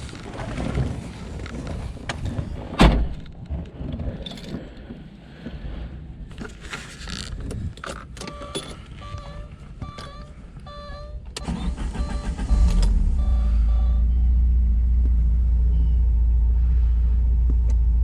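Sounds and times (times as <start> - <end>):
faint steady tone: 8.2 - 17.3.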